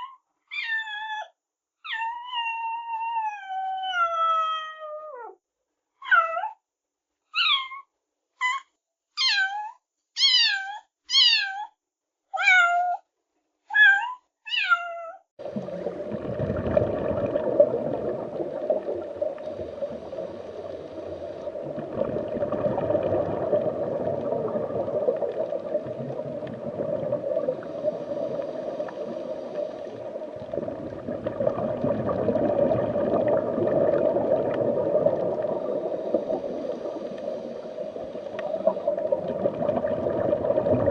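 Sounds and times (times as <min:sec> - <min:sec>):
cat meowing: 0:09.2 - 0:11.7.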